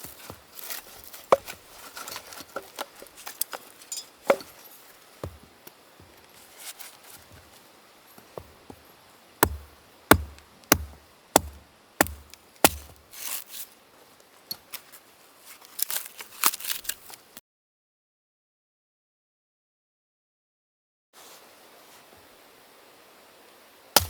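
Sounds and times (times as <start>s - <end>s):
split wood clattering: 0.6s - 4.6s, 9.4s - 13.4s
axe chopping firewood: 4.2s - 4.6s, 5.2s - 5.6s, 9.4s - 13.0s.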